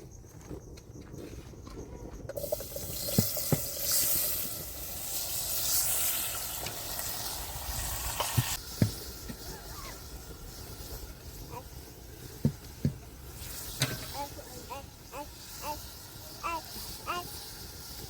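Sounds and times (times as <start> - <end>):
steady hiss: 2.4 - 18.0.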